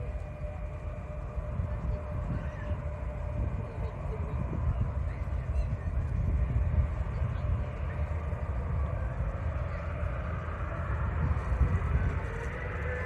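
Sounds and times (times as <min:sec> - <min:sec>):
faint engine whine: 0:00.0 - 0:13.0
jet engines rumbling: 0:00.0 - 0:13.0.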